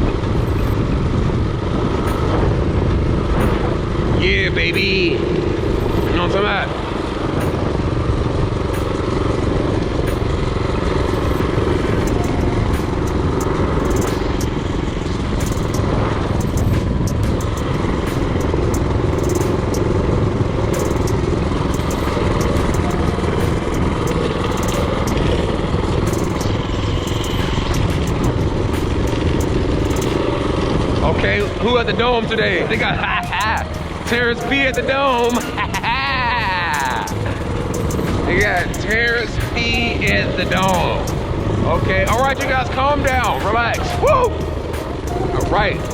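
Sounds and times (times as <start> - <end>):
small engine running: 0.0 - 45.9.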